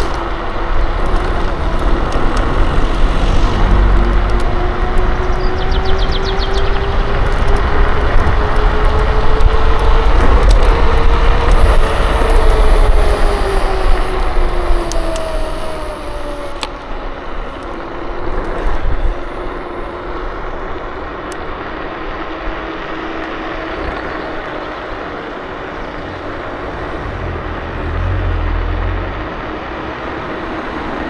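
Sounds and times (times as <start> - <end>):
low rumble: 0.0 - 17.0, 23.4 - 30.7
electric scooter motor whine: 0.0 - 31.0
wind and tyre noise: 0.0 - 31.0.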